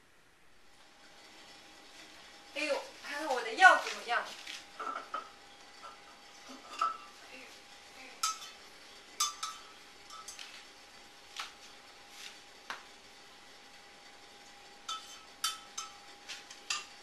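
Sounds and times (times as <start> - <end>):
utensil clinking against cooking pot: 8.2 - 8.6, 9.2 - 10.5, 14.9 - 17.0.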